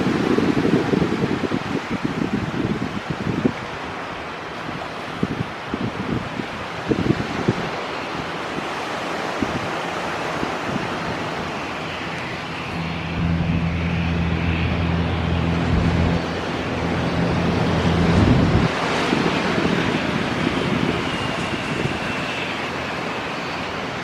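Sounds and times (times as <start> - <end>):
jet engines roaring: 0.0 - 24.0
wind buffeting microphone: 0.0 - 24.0
low steady hum: 10.2 - 23.2.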